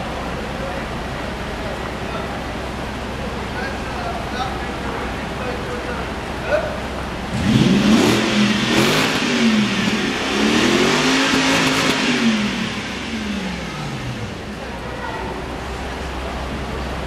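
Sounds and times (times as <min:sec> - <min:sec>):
car engine revving: 0:05.2 - 0:17.0.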